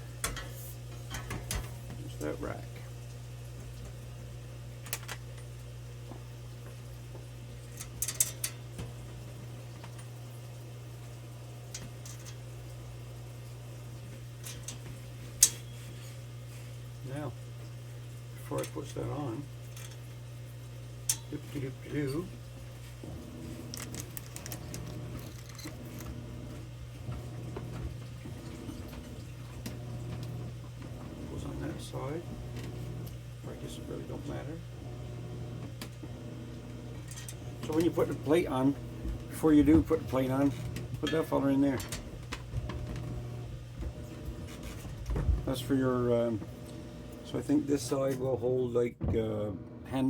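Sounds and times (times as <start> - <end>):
steady low hum: 0.0 - 50.0
metal parts clicking and clinking: 7.8 - 8.6, 19.7 - 20.0, 23.7 - 26.1.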